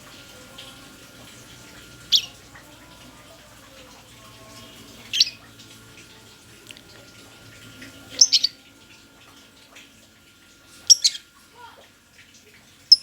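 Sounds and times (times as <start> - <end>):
faint steady hum: 0.0 - 13.0
bird shrill chirps: 8.2 - 8.6, 10.9 - 11.2.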